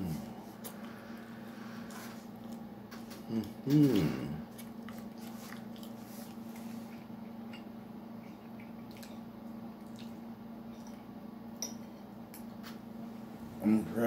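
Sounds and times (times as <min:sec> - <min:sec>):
steady low hum: 0:00.0 - 0:14.0
wet chewing: 0:00.6 - 0:11.0.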